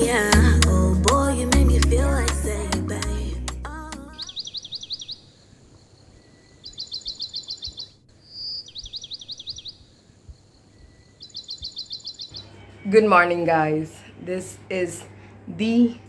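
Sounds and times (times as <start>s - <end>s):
background music: 0.0s - 4.2s
small bird trilling chirps: 4.2s - 5.5s, 6.1s - 12.9s.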